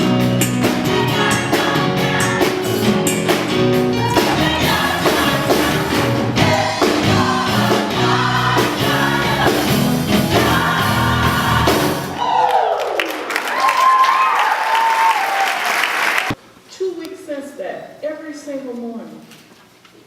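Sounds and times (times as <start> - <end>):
band with bass and drums: 0.0 - 12.2
choir singing gospel: 0.0 - 12.7.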